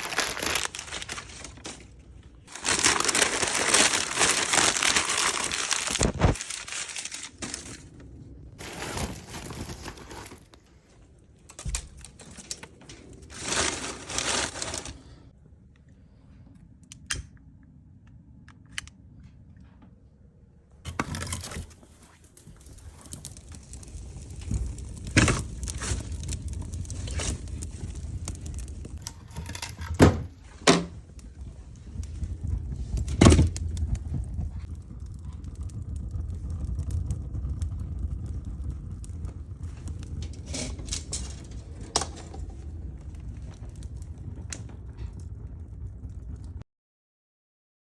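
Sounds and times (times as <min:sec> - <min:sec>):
steady low rumble: 0:30.3 - 0:46.6.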